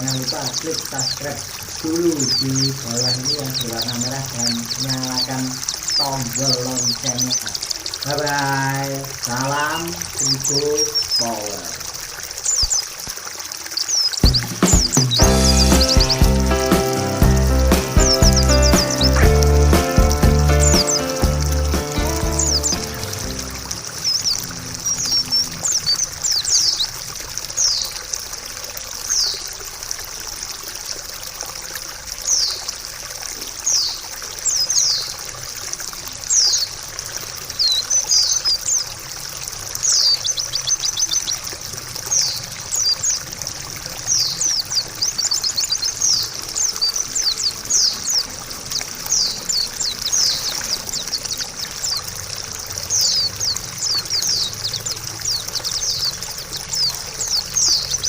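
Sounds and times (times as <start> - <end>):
running water trickling: 0.0 - 58.0
bird chirping high notes: 14.2 - 26.0.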